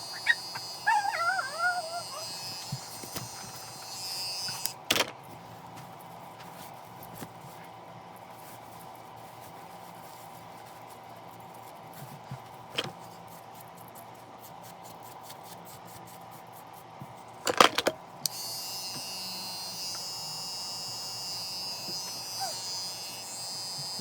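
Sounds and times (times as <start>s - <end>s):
hair clippers buzzing: 0.0s - 5.0s, 18.2s - 24.0s.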